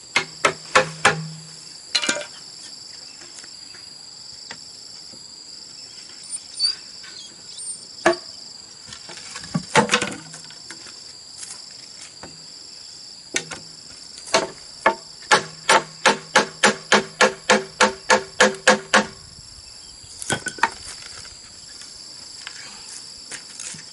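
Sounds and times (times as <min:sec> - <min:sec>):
insects trilling: 0:00.0 - 0:23.9
tool knocking on bamboo: 0:00.2 - 0:01.4, 0:14.3 - 0:19.1.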